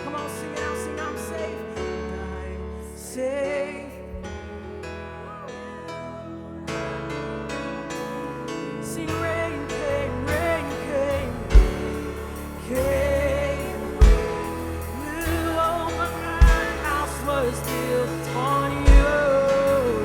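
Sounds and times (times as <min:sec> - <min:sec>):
person singing: 0:00.0 - 0:20.0
live band playing: 0:10.7 - 0:20.0
bass drum hits: 0:11.5 - 0:20.0.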